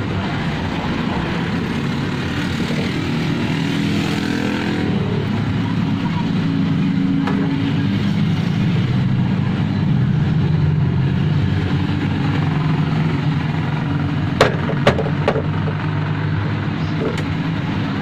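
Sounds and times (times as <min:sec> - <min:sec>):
low mechanical drone: 0:00.0 - 0:18.0
sharp knocks: 0:14.4 - 0:15.8.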